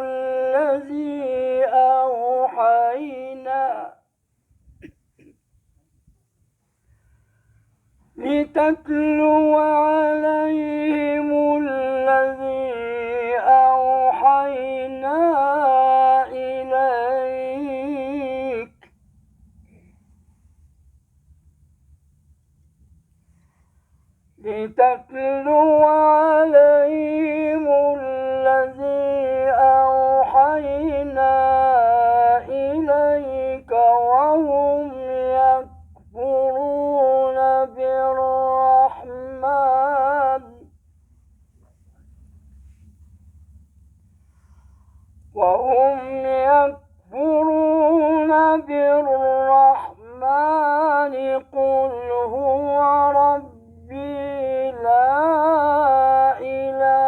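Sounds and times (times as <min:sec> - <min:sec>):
man chanting melodically: 0:00.0 - 0:04.1, 0:08.2 - 0:18.8, 0:24.4 - 0:40.7, 0:45.3 - 0:57.0.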